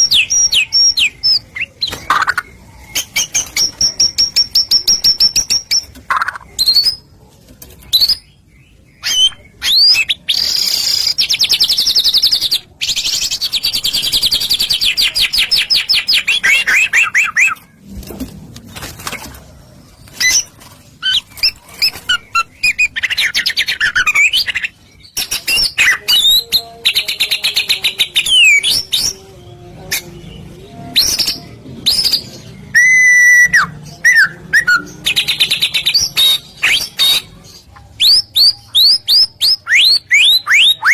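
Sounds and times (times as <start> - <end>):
songbird whistles and trills: 31.0 - 37.2.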